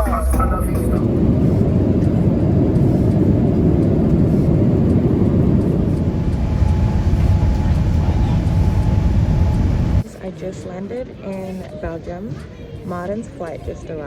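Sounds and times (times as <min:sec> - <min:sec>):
jet airliner rumble: 0:00.0 - 0:10.1.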